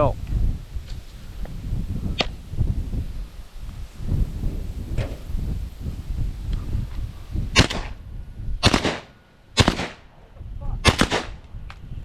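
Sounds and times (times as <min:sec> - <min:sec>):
shotgun blasts: 0:07.5 - 0:08.0, 0:08.6 - 0:10.1, 0:10.8 - 0:11.4.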